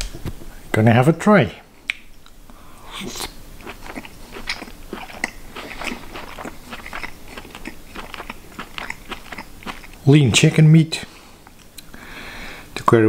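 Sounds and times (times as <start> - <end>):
mouth clicks and smacks: 1.8 - 10.0
person biting and chewing: 2.9 - 10.0.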